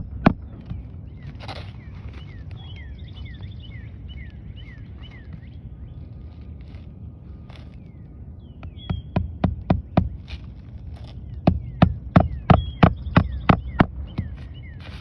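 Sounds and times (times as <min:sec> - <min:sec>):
hammer striking nails: 0:09.0 - 0:10.2, 0:11.5 - 0:14.3.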